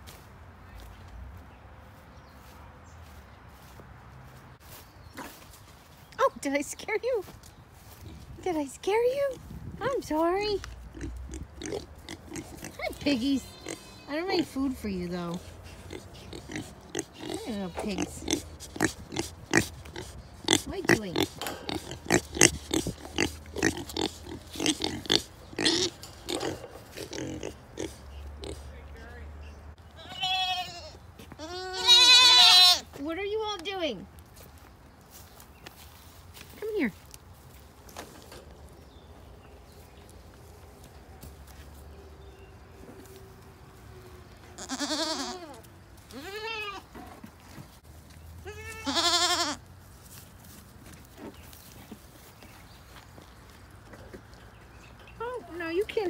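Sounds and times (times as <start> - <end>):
pigs grunting: 10.9 - 28.7
goat bleating: 12.6 - 14.3, 29.9 - 32.9, 44.5 - 47.0, 48.4 - 49.7.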